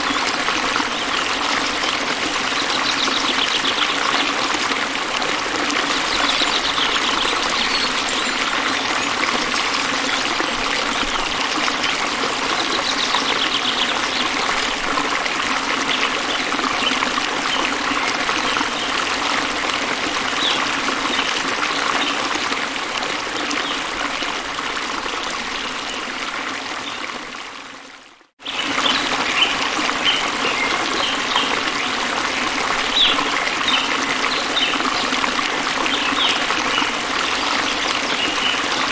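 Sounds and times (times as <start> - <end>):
stream running water: 0.0 - 38.9
high chirps: 6.0 - 13.7.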